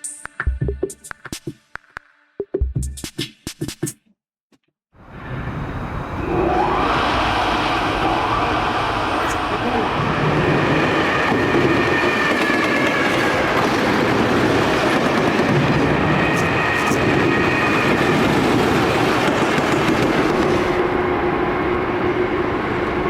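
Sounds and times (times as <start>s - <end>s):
freight train rumble: 5.0s - 23.0s
train wheels clattering over rails: 10.5s - 20.8s.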